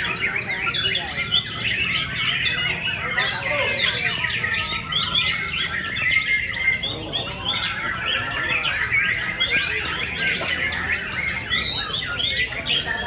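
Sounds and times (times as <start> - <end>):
birds chirping and squawking: 0.0 - 13.0.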